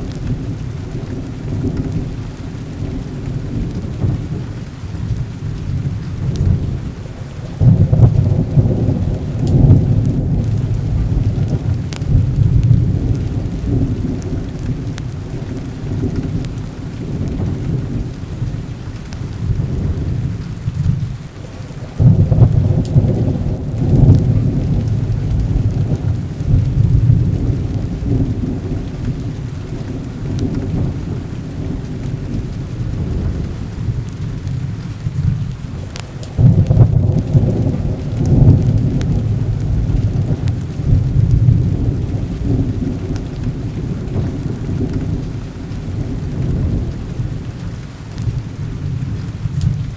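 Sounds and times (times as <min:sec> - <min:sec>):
heavy rain: 0:00.0 - 0:49.9
rolling thunder: 0:00.0 - 0:49.9.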